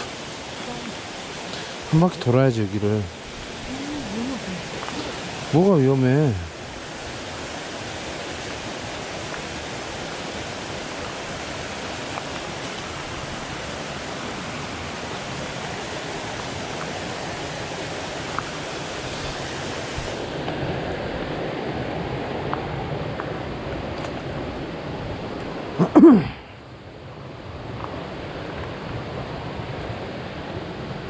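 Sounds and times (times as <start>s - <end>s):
flowing water rushing: 0.0s - 31.0s.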